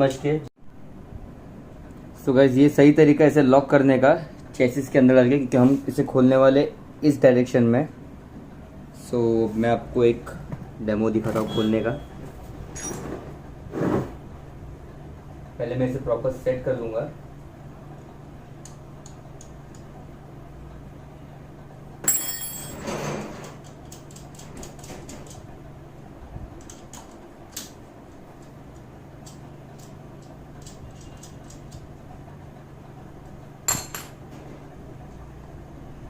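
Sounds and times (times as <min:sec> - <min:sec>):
metal tools clanking: 0:12.7 - 0:13.2, 0:22.0 - 0:23.7.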